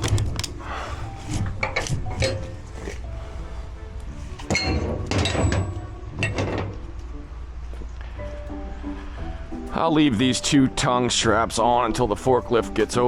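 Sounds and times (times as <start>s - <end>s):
background music: 0.0s - 13.0s
metal chains clinking and knocking: 4.5s - 6.7s.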